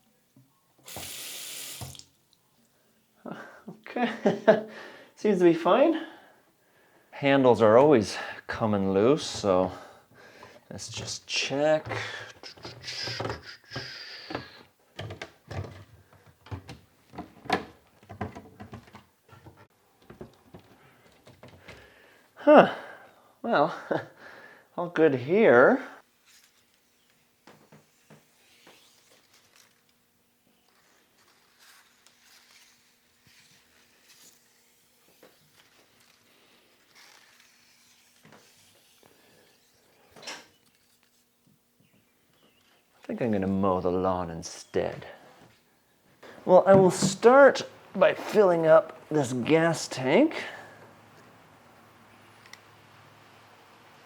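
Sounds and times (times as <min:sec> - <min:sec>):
faucet hiss: 0:00.8 - 0:02.1.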